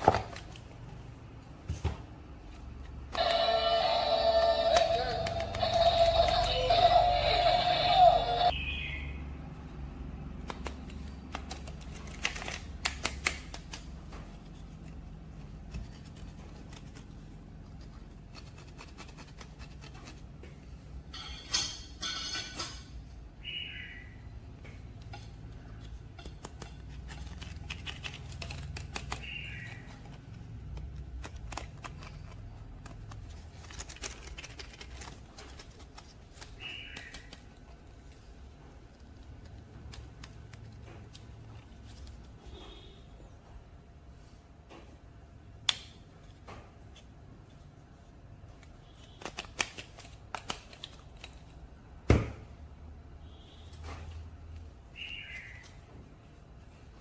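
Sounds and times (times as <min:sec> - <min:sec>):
plastic toys being handled: 0:02.3 - 0:08.6, 0:10.4 - 0:21.7, 0:24.8 - 0:42.4
packaging rustling: 0:26.3 - 0:38.1.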